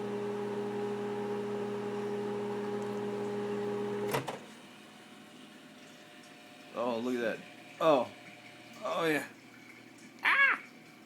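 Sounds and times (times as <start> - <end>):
microwave oven humming: 0.0 - 11.0
microwave shut-off click: 2.6 - 4.5.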